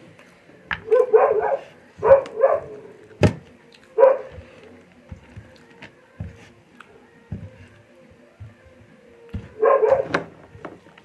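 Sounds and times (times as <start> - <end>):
dog barking: 0.8 - 2.9, 4.0 - 4.4, 9.5 - 10.1.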